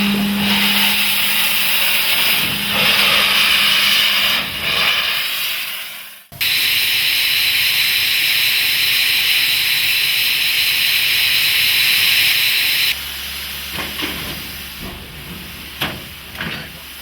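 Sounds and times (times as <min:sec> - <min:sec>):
low hum: 0:00.0 - 0:04.0
steam hissing: 0:00.0 - 0:14.8.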